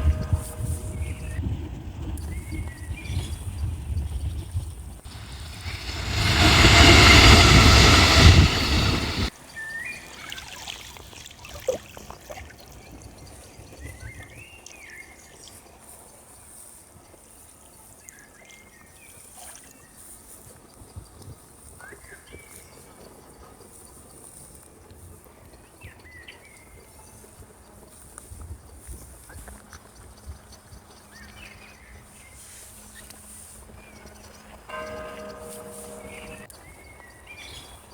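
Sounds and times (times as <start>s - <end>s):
loud rushing noise: 5.1s - 9.3s.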